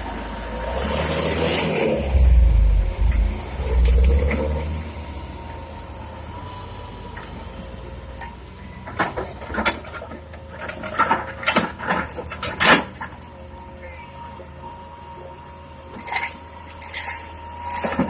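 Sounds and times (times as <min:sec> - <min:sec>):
diesel engine droning: 0:00.0 - 0:18.0
sharp clanks and knocks: 0:08.2 - 0:13.2.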